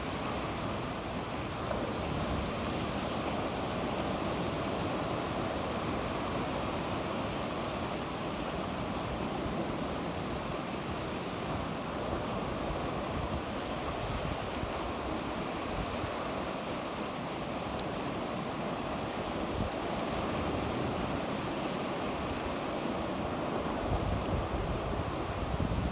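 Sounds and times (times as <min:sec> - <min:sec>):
sea waves washing onto shore: 0:00.0 - 0:25.9
wind on microphone: 0:23.6 - 0:25.9.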